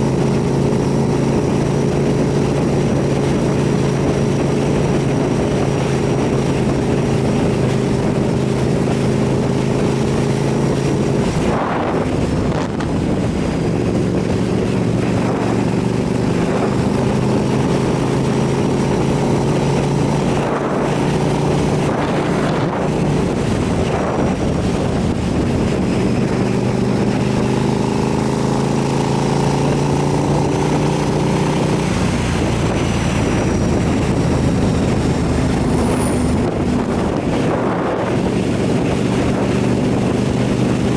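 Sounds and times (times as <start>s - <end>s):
motorcycle engine running: 0.0s - 40.9s
wind noise on microphone: 0.0s - 40.9s.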